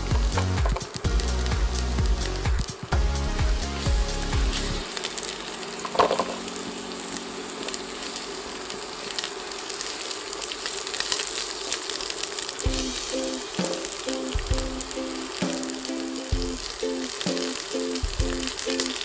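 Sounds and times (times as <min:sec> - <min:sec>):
background music: 0:00.0 - 0:08.7, 0:12.7 - 0:19.0
vegetables sizzling in hot oil: 0:00.0 - 0:19.0.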